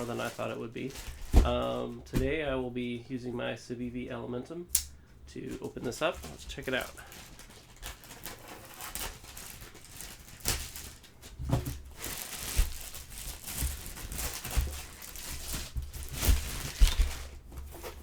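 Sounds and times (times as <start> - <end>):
packaging crinkling: 0.0 - 2.4, 5.5 - 18.0
cardboard tearing: 6.0 - 18.0
knife slitting packing tape: 12.0 - 18.0.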